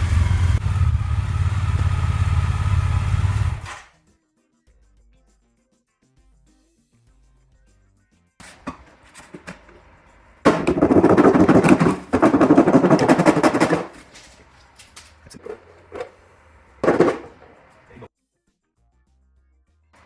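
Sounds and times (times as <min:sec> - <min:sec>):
scattered knocks: 0:08.4 - 0:09.8, 0:10.5 - 0:18.1.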